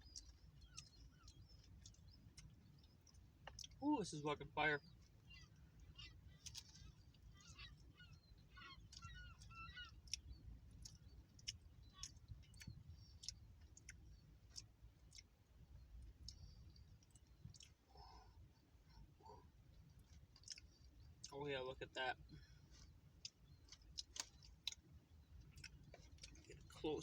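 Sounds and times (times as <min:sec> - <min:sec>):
chewing clicks and crunches: 0:00.0 - 0:03.8, 0:04.8 - 0:21.3, 0:21.9 - 0:27.0
faint gull calls: 0:04.1 - 0:10.2.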